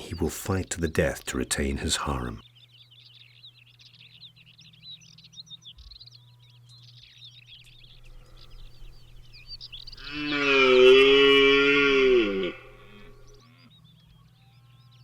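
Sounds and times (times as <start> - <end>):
small birds chirping: 0.0 - 15.0
deer stag bellowing: 8.0 - 13.4.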